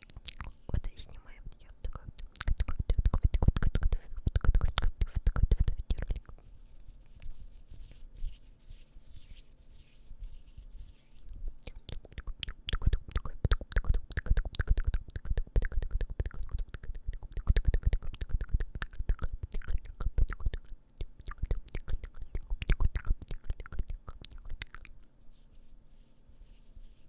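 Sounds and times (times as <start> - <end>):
wet mouth clicks and smacks: 0.0 - 6.4, 11.2 - 25.1.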